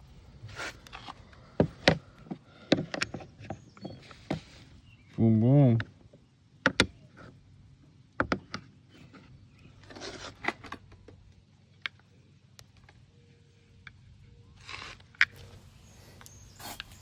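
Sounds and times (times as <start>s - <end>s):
short rustle: 14.6s - 17.0s.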